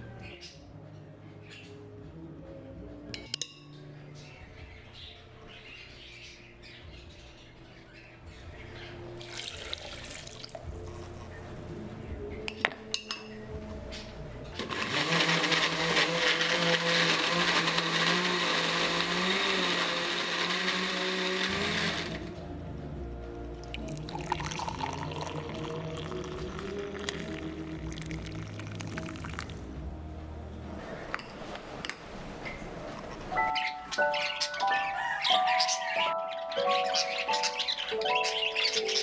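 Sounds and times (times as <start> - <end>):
electric blender running: 14.6 - 22.4.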